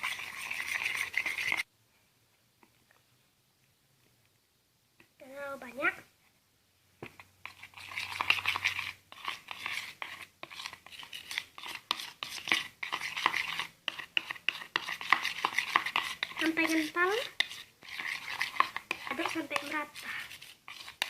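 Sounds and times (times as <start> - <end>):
spoon scraping bowl: 0.0 - 1.7, 7.2 - 21.0
spoon stirring slime: 0.0 - 1.7, 7.0 - 21.0.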